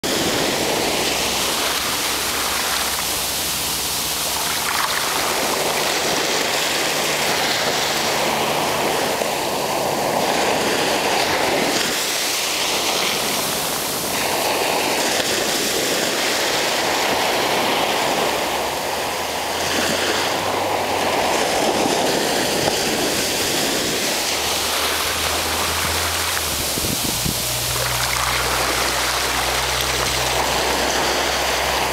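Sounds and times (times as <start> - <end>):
ocean waves breaking: 0.0 - 31.9.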